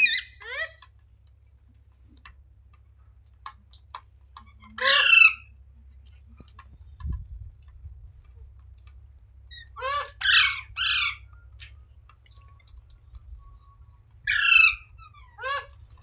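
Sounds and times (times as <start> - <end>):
parrot squawking: 0.0 - 0.8, 4.8 - 5.5, 9.5 - 11.2, 14.3 - 15.8.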